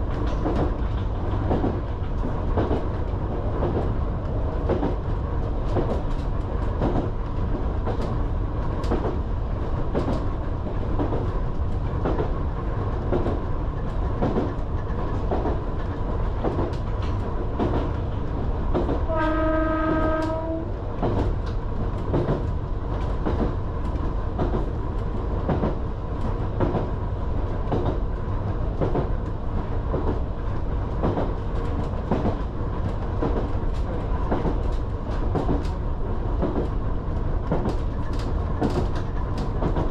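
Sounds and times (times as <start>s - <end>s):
train rumbling on track: 0.0s - 39.9s
train horn: 19.0s - 20.8s.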